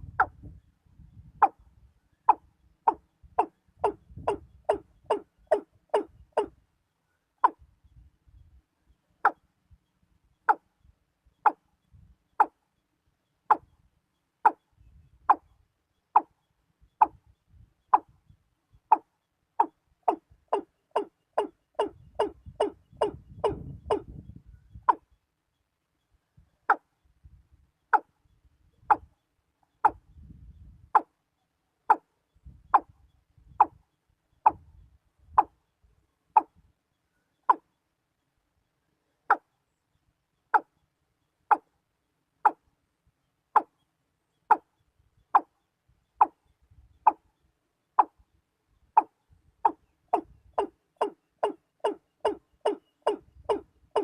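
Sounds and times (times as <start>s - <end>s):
bird short hollow calls: 1.2s - 7.7s, 9.0s - 9.5s, 10.3s - 10.8s, 11.4s - 11.7s, 13.4s - 13.8s, 14.4s - 18.2s, 18.9s - 25.2s, 36.4s - 37.8s, 43.5s - 48.2s, 48.9s - 54.0s.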